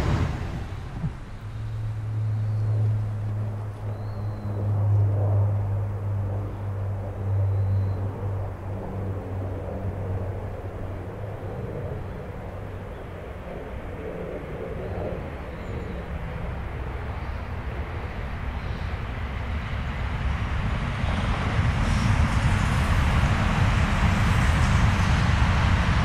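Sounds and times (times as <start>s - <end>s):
train wheels rumbling on rail: 0.0s - 4.0s, 19.5s - 26.0s
low hum: 0.0s - 26.0s.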